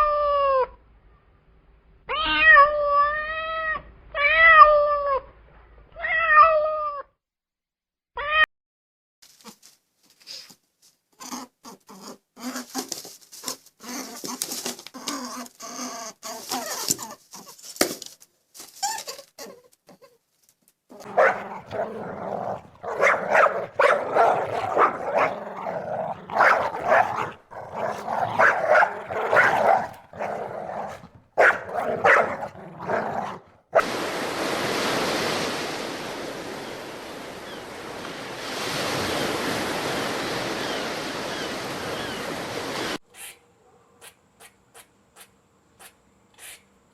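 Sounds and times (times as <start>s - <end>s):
dog barking and whining: 21.0s - 33.9s.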